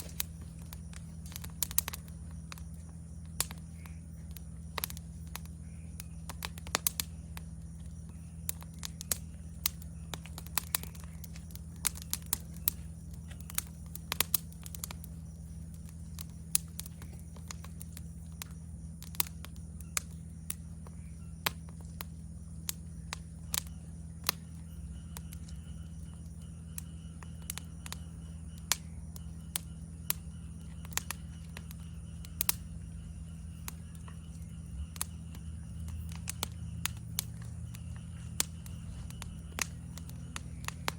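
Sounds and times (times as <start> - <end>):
high-pitched insect chirring: 0.0 - 40.9
low insect trill: 0.0 - 40.9
wood fire crackling and popping: 0.0 - 40.9.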